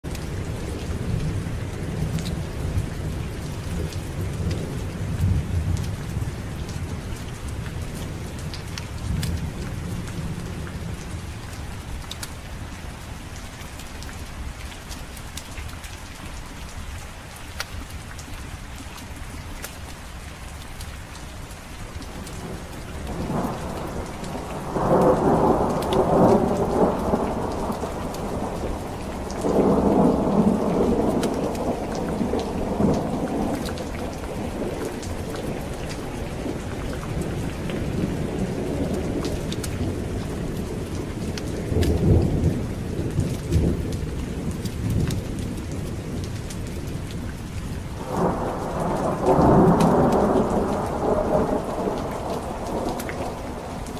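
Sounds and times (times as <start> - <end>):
steady rain: 0.0 - 53.9
thunder rumbling: 22.1 - 47.2, 47.8 - 53.9.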